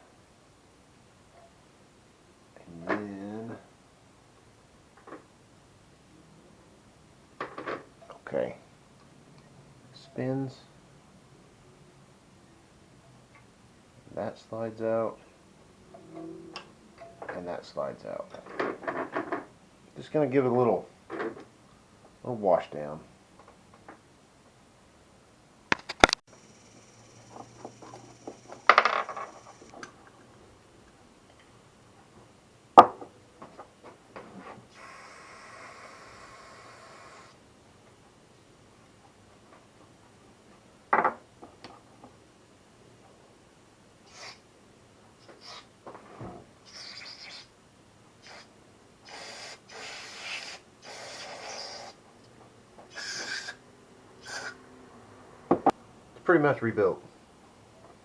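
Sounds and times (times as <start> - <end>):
spray hissing: 44.1 - 44.4, 46.6 - 47.5, 48.2 - 52.0, 52.9 - 53.6, 54.2 - 54.6.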